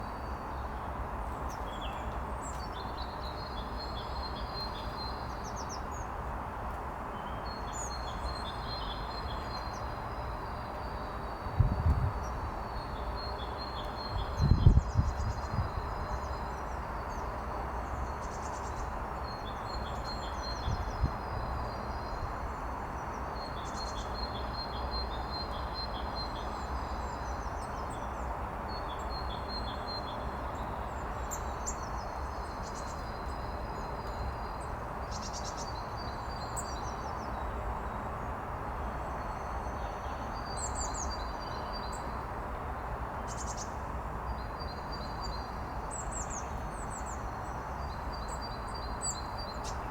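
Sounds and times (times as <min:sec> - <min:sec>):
small songbirds chirping: 0:00.0 - 0:06.2, 0:07.1 - 0:49.9.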